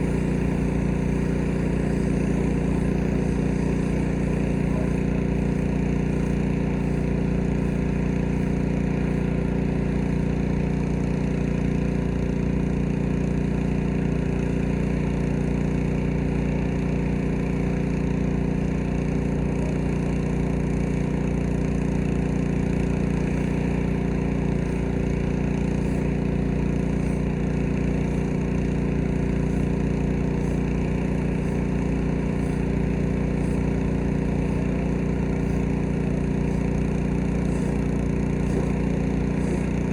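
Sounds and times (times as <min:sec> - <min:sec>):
water spray hissing: 0:00.0 - 0:10.3, 0:23.2 - 0:39.9
pressure washer engine running: 0:00.0 - 0:39.9.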